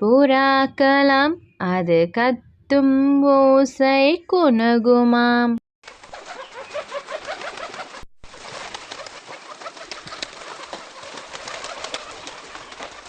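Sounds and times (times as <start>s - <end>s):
pigeons cooing: 5.9s - 13.0s.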